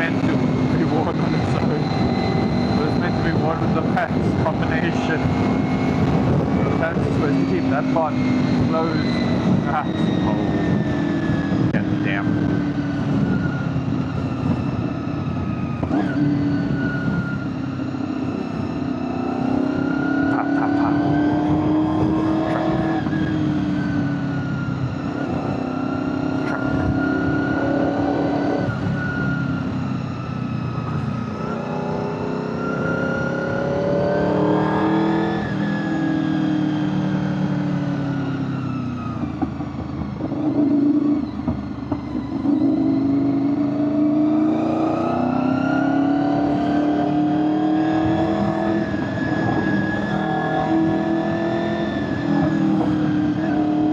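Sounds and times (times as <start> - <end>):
wind noise on microphone: 0.1 - 19.9, 20.7 - 29.5.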